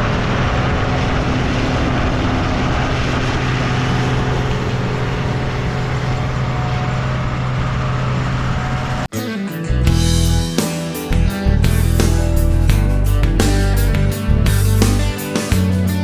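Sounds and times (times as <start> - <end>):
combine harvester engine hum: 0.0 - 9.1
guitar and drum music: 9.1 - 16.0.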